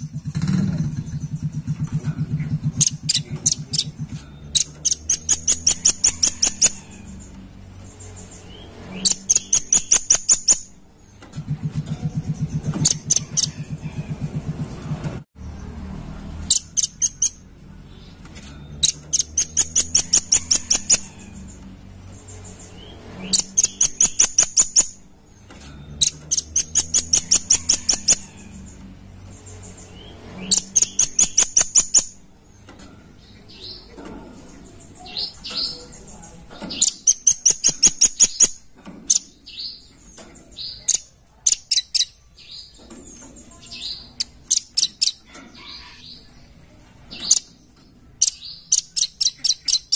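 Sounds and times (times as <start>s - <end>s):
nuthatch calling: 2.4s - 7.3s, 7.9s - 10.7s, 12.2s - 14.1s, 16.5s - 17.4s, 18.8s - 21.5s, 22.4s - 25.0s, 26.0s - 28.3s, 29.4s - 32.2s, 35.0s - 39.8s.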